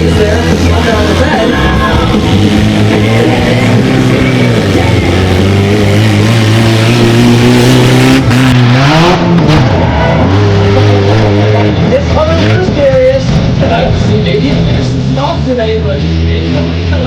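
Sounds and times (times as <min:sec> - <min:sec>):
mini monster truck engine revving: 0:00.0 - 0:12.7.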